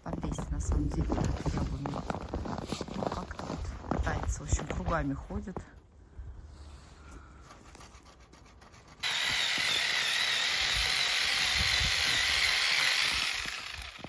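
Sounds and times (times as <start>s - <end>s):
saw rasping through branch: 7.6s - 14.0s.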